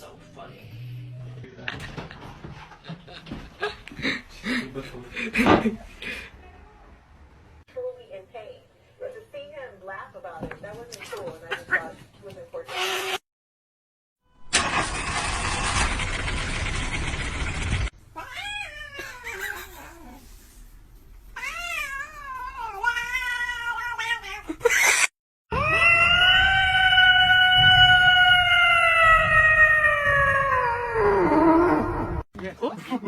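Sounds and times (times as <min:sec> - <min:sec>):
cats meowing and yowling: 0:18.1 - 0:20.2, 0:21.4 - 0:32.2.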